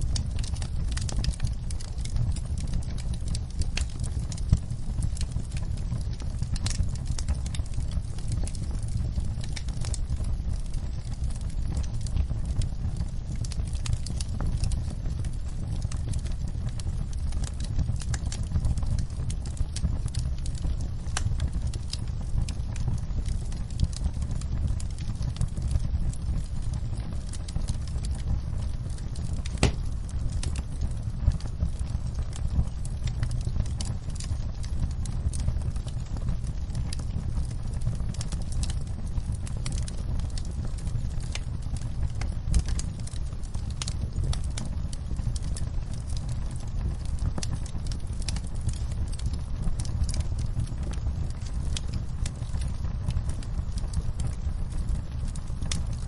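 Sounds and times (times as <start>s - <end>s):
campfire wood crackling: 0.0s - 56.0s
low rumble of flame: 0.0s - 56.0s
sharp pop from fire: 29.5s - 30.0s.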